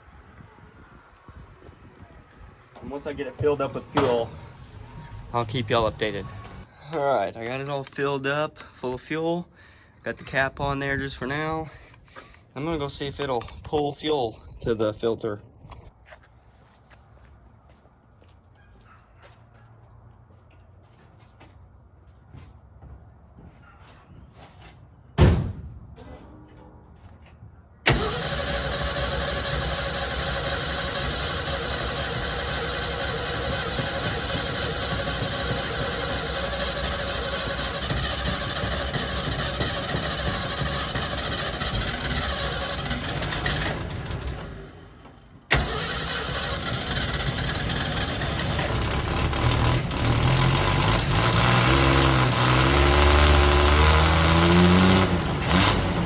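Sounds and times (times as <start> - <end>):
engine cranking on starter: 27.8 - 56.0
engine running and revving: 27.9 - 44.8, 45.6 - 56.0.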